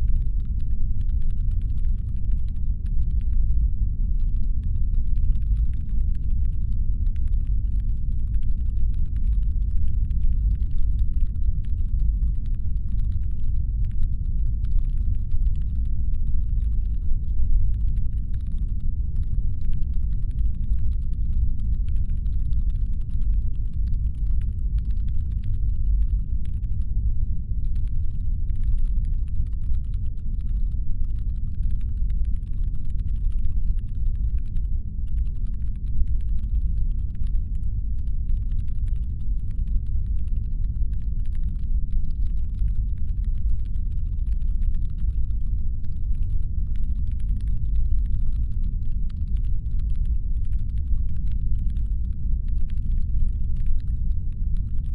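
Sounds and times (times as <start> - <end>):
faint irregular clicking: 0.0 - 27.0, 27.6 - 54.9
deep brown-noise rumble: 0.0 - 54.9.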